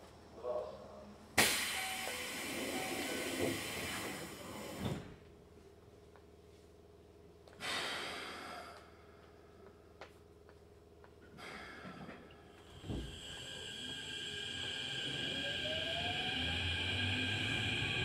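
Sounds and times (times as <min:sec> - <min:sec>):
low steady train hum: 0:00.0 - 0:18.0
electric train running noise: 0:01.4 - 0:04.6, 0:12.6 - 0:18.0
compressed air hiss: 0:12.7 - 0:18.0.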